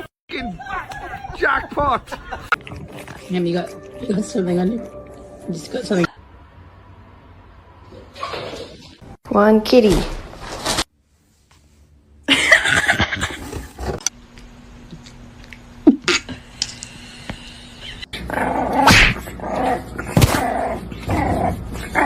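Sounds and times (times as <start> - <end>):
dog barking and growling: 18.1 - 22.0.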